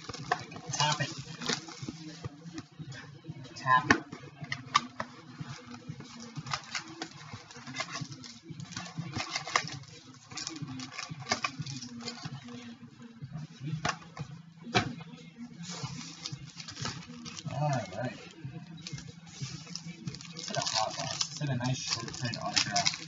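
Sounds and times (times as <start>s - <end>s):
wrapper crinkling: 0.0s - 2.3s, 4.7s - 12.7s, 15.6s - 23.0s
cardboard rustling: 0.0s - 2.7s, 15.7s - 23.0s.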